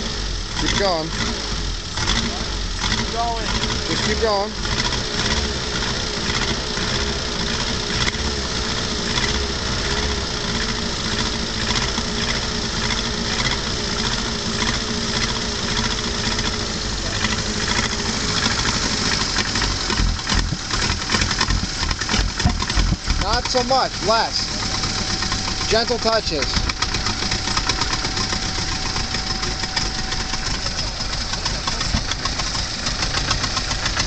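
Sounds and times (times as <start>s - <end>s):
car engine running unevenly: 0.0s - 34.0s.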